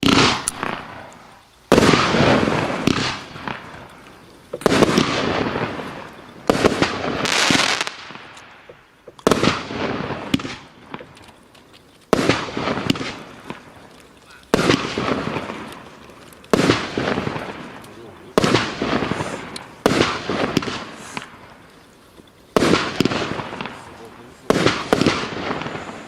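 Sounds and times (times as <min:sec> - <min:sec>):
sharp pops: 0:00.0 - 0:05.2, 0:10.3 - 0:25.8
firework bursts: 0:00.0 - 0:26.0.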